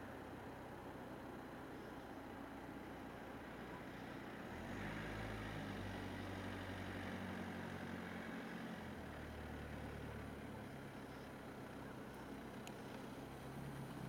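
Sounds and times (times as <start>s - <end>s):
car engine running: 7.8s - 14.0s.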